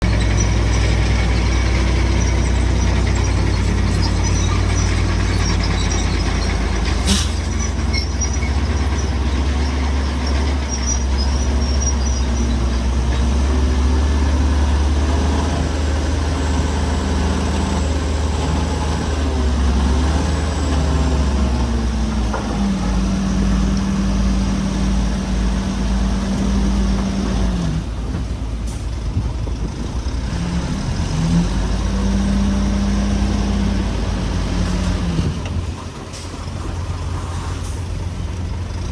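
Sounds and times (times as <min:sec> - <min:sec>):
diesel construction machinery drone: 0:00.0 - 0:38.9.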